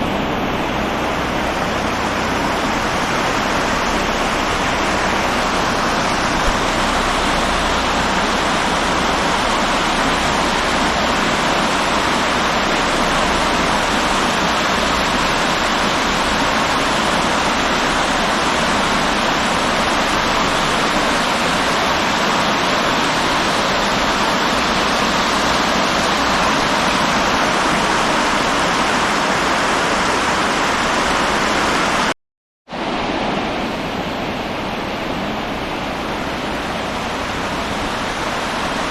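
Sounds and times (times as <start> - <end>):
river water rushing: 0.0 - 32.1, 32.7 - 38.9.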